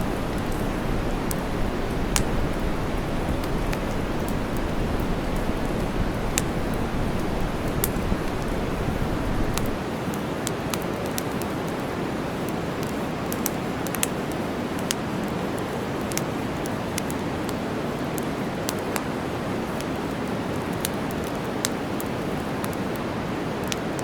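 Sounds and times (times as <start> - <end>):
deep rumble: 0.0 - 9.8
campfire pops and crackles: 0.0 - 24.0
steady white noise hiss: 0.0 - 24.0.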